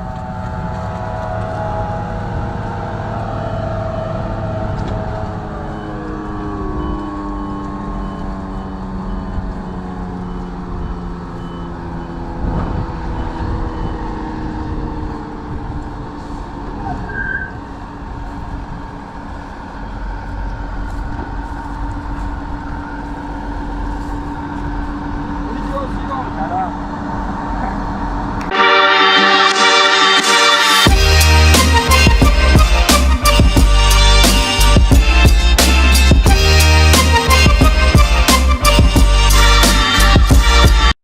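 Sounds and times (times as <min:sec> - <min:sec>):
forage harvester running: 0:00.0 - 0:13.9, 0:14.5 - 0:28.4
reversing alarm beeping: 0:00.0 - 0:15.3.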